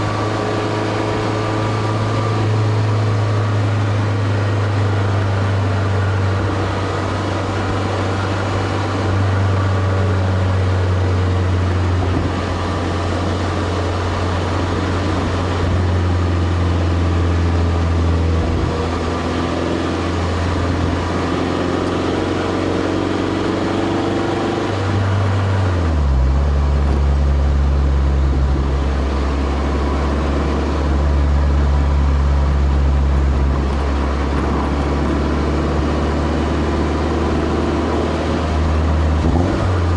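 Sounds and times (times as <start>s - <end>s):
car exhaust deep low note: 0.0s - 39.9s.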